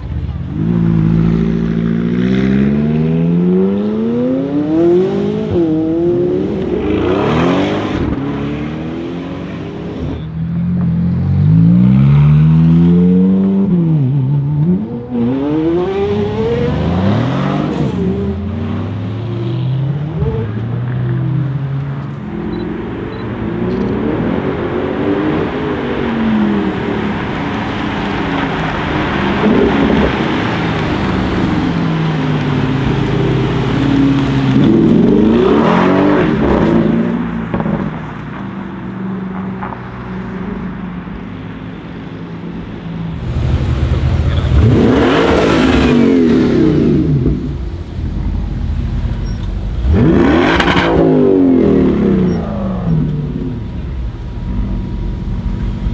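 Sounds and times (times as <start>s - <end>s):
cars accelerating past: 11.1s - 40.8s, 43.2s - 53.8s.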